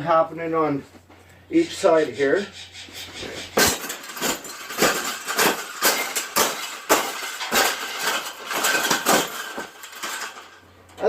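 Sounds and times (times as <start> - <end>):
cage scraping and rubbing: 1.6 - 6.8.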